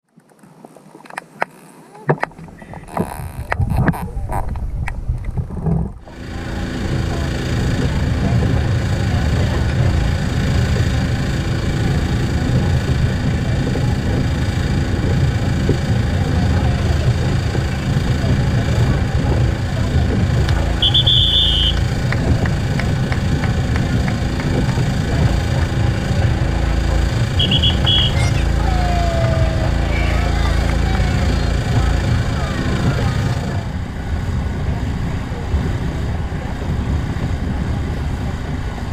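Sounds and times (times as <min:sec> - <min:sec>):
low motor drone with humming tones: 0:01.3 - 0:38.9
underwater low rumble: 0:02.1 - 0:38.9
falling whistle: 0:20.8 - 0:21.8, 0:27.4 - 0:28.3.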